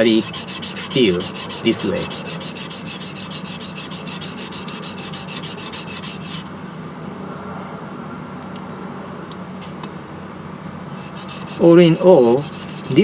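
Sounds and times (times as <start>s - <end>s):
blade scraping on whetstone: 0.0s - 6.5s, 11.0s - 13.0s.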